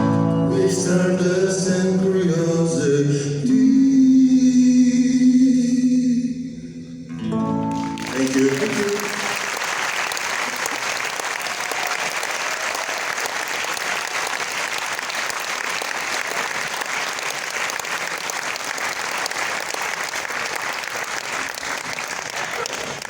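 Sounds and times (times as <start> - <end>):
audience applauding: 7.6 - 23.0.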